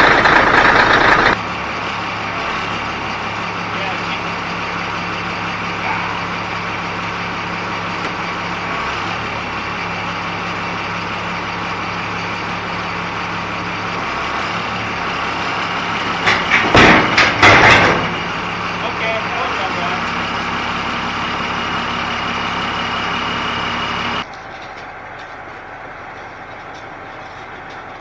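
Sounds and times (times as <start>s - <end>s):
loud sharp noise burst: 0.0s - 1.4s
large engine idling: 0.0s - 28.0s.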